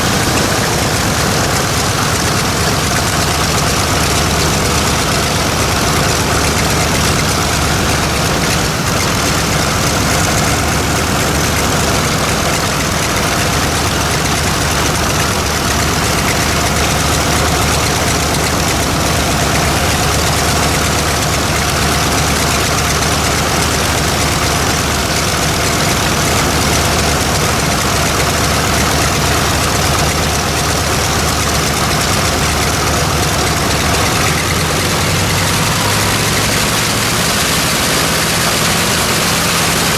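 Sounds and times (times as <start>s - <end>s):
radial aircraft engine idling: 0.0s - 39.9s.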